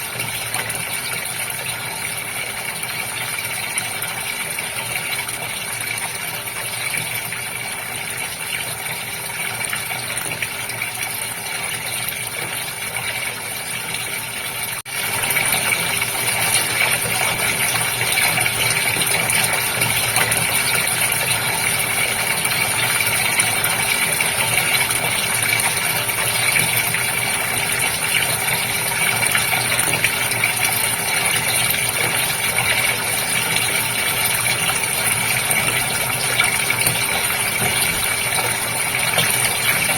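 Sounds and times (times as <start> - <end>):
aquarium pump hum: 0.0 - 39.9
aquarium water splashing and bubbling: 0.0 - 39.9.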